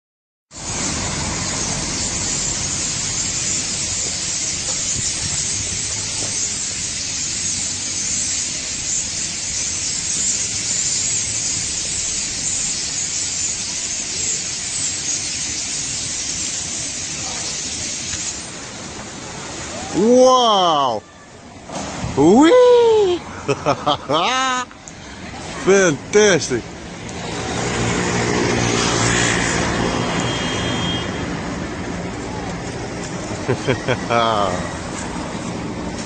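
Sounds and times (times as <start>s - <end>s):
flock of small birds chattering: 1.4s - 18.5s.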